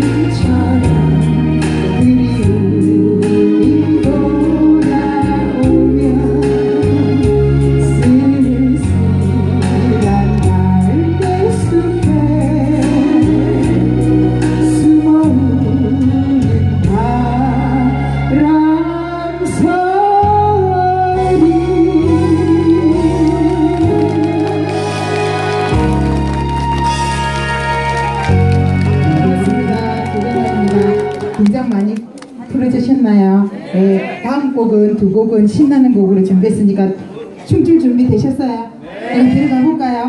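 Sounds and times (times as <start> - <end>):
person singing: 0.0 - 26.0, 27.7 - 31.4
keyboard accompaniment with beat: 0.0 - 32.2.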